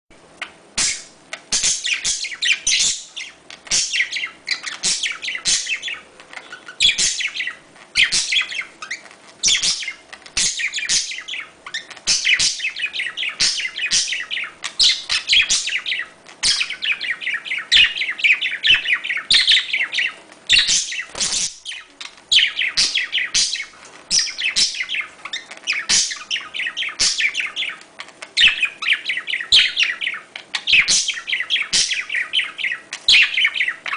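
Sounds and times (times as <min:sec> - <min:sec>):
budgerigars chattering and warbling: 0:00.4 - 0:33.9.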